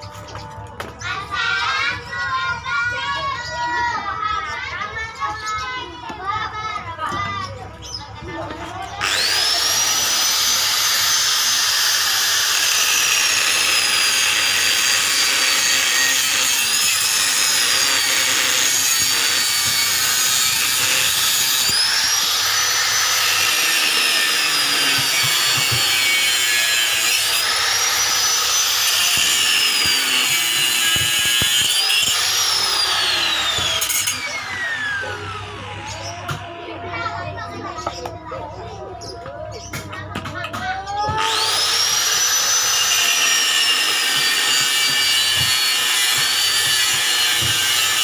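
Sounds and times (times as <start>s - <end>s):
electric power tool whine: 9.0s - 36.7s, 41.1s - 48.0s.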